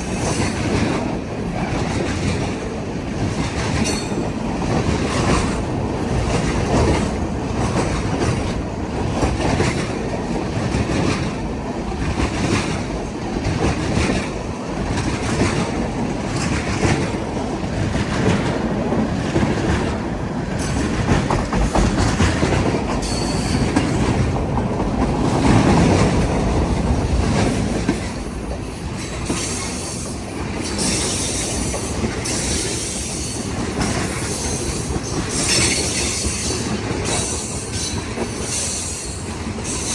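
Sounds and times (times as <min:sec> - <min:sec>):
train wheel squeal: 0:00.0 - 0:04.4, 0:20.6 - 0:24.4, 0:27.3 - 0:39.9
train wheels clicking over rail joints: 0:00.0 - 0:39.9.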